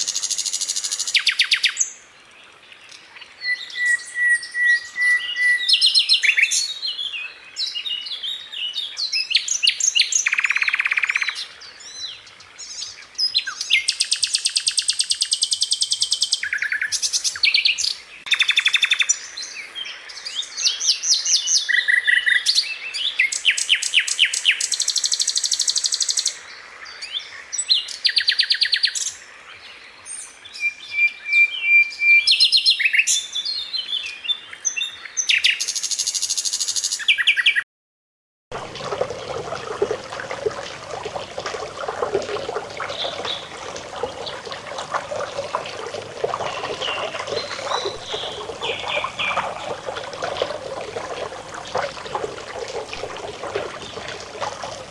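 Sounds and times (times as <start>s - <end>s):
bird whistles: 3.4s - 6.3s.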